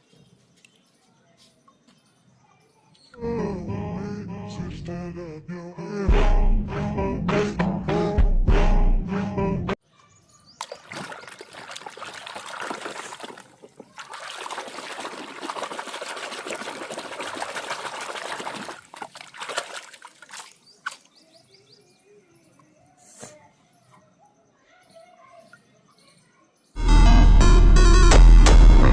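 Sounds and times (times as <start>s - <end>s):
water splashing over plastic toys: 10.6s - 21.3s.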